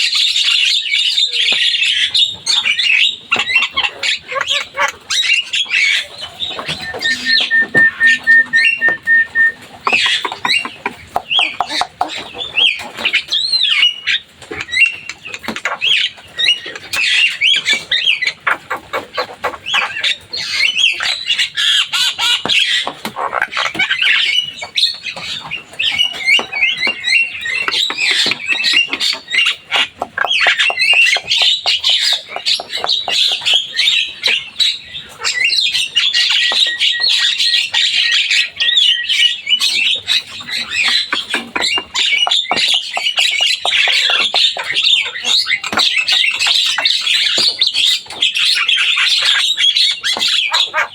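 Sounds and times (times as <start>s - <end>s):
myna singing harsh calls and whistles: 5.3s - 10.7s.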